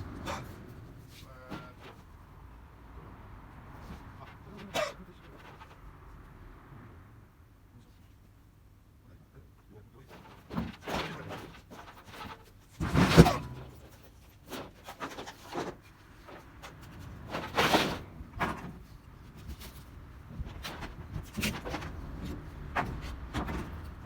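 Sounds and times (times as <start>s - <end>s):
tin roofing sheets clattering: 0.1s - 2.2s, 10.0s - 24.0s.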